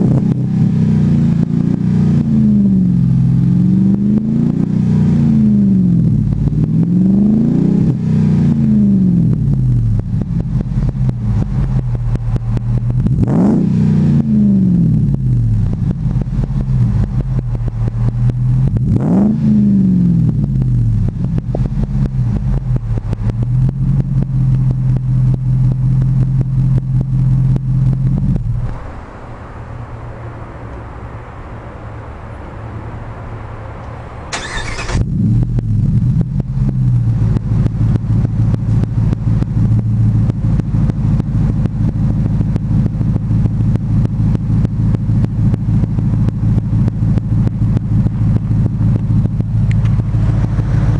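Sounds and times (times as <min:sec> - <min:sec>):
pickup truck exhaust idling: 0:09.0 - 0:19.1, 0:19.7 - 0:29.3, 0:34.3 - 0:50.9.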